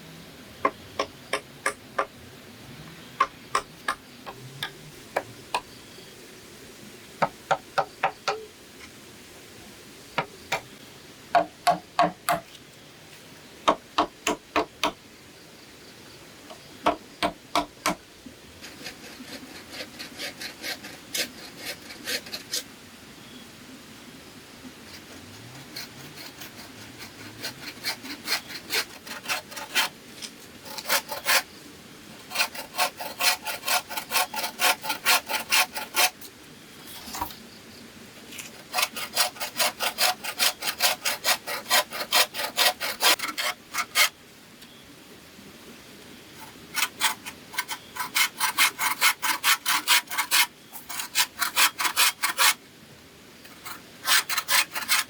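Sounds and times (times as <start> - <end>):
hand tool rasping through bamboo: 16.9 - 18.0, 18.6 - 22.6, 24.9 - 31.5, 32.2 - 36.2, 38.4 - 44.1, 46.4 - 52.6, 53.5 - 55.0.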